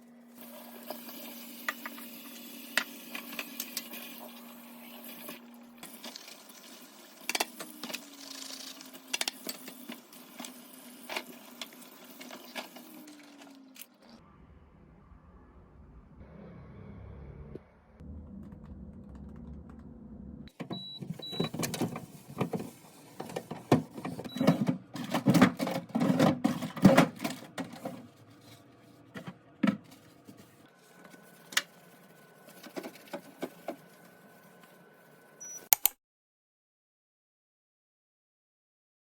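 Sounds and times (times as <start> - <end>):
plastic parts clattering: 20.6 - 28.1
rubbing and wiping: 21.0 - 24.3, 27.8 - 35.4.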